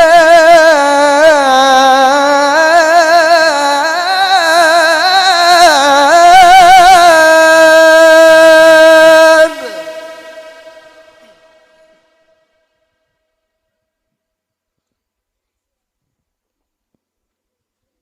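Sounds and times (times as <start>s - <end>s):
person reciting in melismatic chant: 0.0s - 12.2s.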